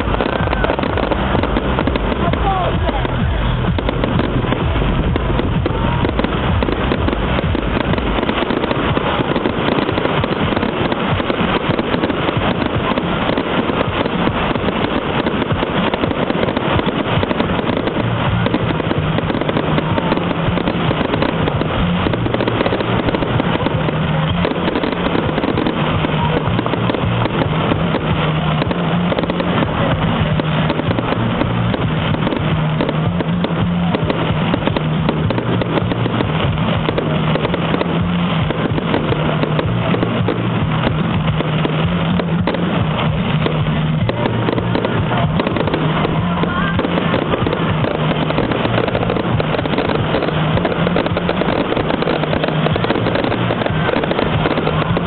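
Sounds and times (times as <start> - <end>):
fireworks popping and crackling: 0.0 - 55.0.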